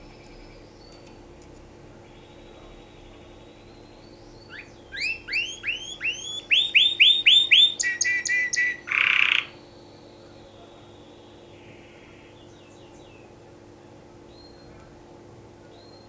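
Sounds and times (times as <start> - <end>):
canary singing: 2.0 - 9.6.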